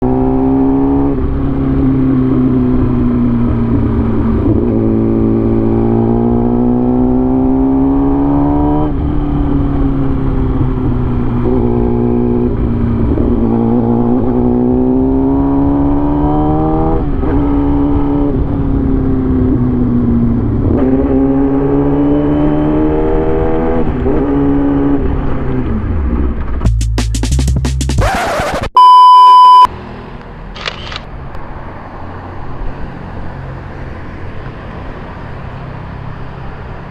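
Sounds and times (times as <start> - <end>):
vehicle engine accelerating: 0.0 - 26.7.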